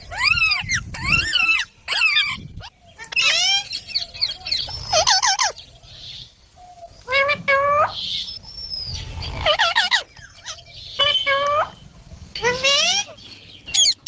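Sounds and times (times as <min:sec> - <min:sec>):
parrots squawking: 0:00.0 - 0:05.7, 0:09.2 - 0:11.8, 0:12.4 - 0:14.0.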